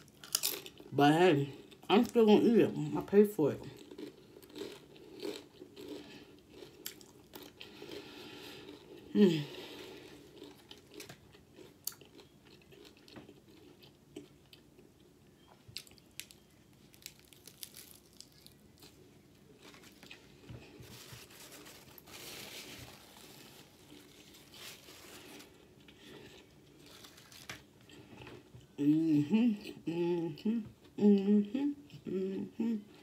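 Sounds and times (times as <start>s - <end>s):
chewing crunchy chips: 0.0s - 0.9s, 3.6s - 19.0s.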